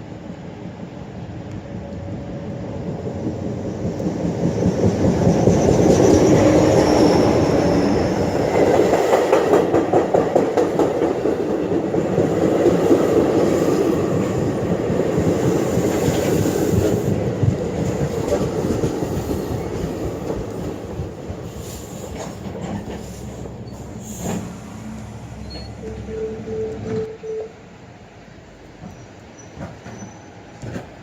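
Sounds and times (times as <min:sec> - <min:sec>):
train wheels clacking on rails: 0:03.0 - 0:26.1, 0:28.8 - 0:31.0
wheel squeal: 0:25.4 - 0:27.4, 0:28.8 - 0:30.5.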